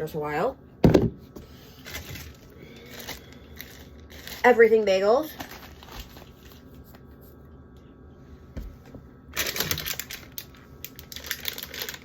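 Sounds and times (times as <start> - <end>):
plastic packaging crackling: 1.8 - 6.7, 9.3 - 12.0.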